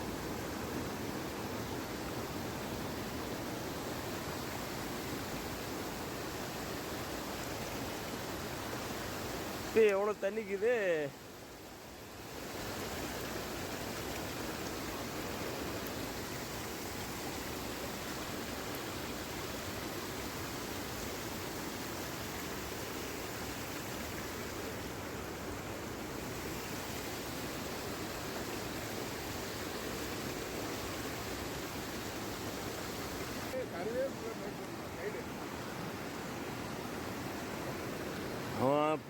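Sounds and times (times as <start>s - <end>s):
floodwater rushing: 0.0s - 39.0s.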